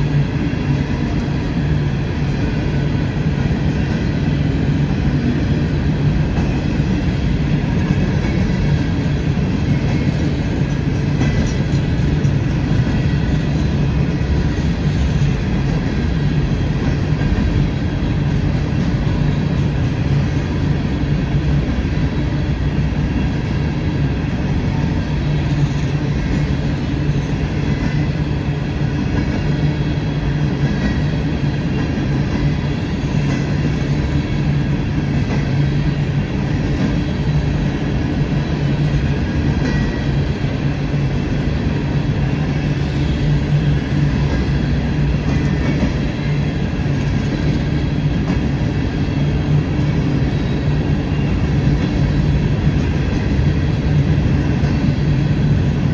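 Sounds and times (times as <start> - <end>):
freight train wheels on rail: 0.0 - 55.9.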